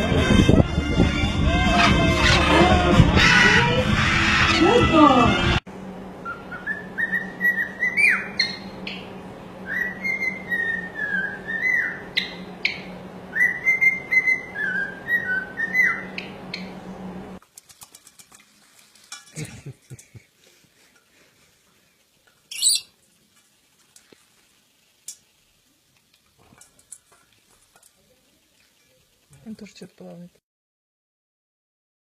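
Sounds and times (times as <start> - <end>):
steady low hum: 0.0 - 27.1
parrot whistling a tune: 6.2 - 8.6, 9.6 - 12.4, 13.3 - 16.2, 22.5 - 22.9
faint clicks and scratches: 17.4 - 19.4.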